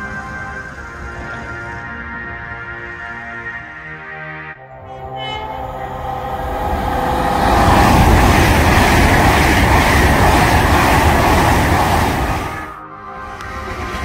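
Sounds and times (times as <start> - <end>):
train wheels rumbling on rail: 5.8 - 12.8, 13.5 - 14.0.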